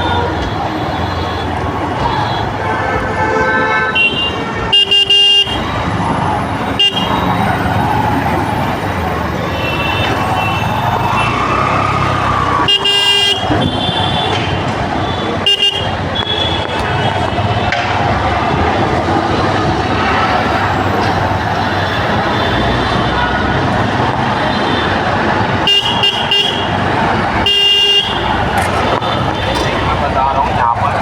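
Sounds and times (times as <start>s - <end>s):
vehicle horns honking: 0.0s - 8.0s, 9.4s - 18.0s, 24.2s - 31.0s
road traffic: 0.0s - 31.0s.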